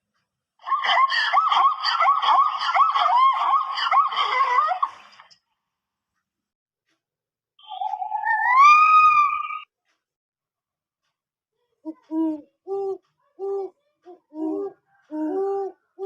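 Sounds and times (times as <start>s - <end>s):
animal drawn-out rising cry: 7.7s - 9.7s.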